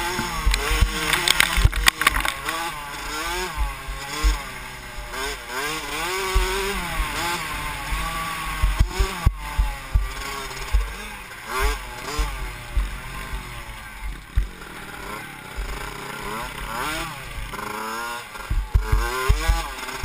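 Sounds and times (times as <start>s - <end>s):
motocross bike engine revving: 0.0s - 20.0s.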